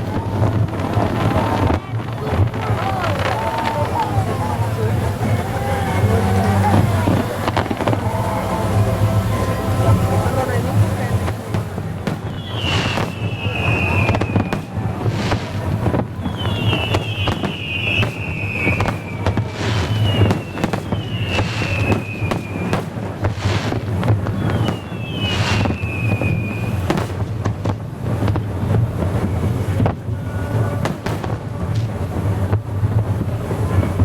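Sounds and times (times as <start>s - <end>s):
low rumble: 0.0s - 22.6s
fireworks bangs and crackle: 0.0s - 34.0s
fireworks whistles: 0.0s - 34.0s.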